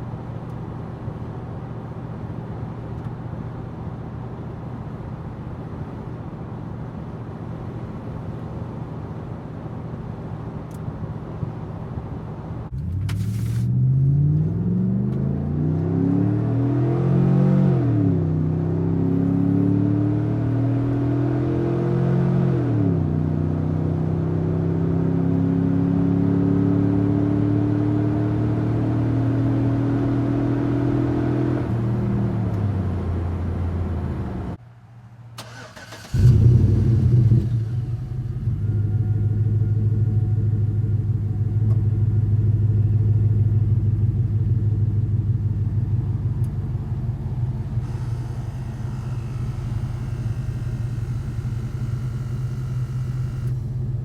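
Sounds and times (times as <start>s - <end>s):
engine exhaust revving through gears: 12.7s - 32.6s, 47.7s - 54.0s
engine firing up: 35.4s - 39.7s, 47.8s - 54.0s
deep engine idle: 47.8s - 54.0s.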